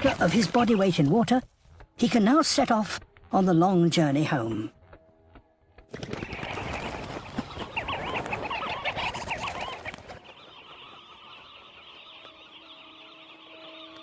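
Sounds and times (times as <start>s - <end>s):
sandgrouse calling: 5.9s - 14.0s.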